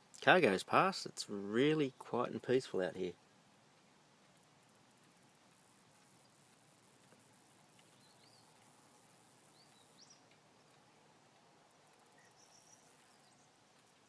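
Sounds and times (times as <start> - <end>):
faint bird chirps: 5.9 - 14.0.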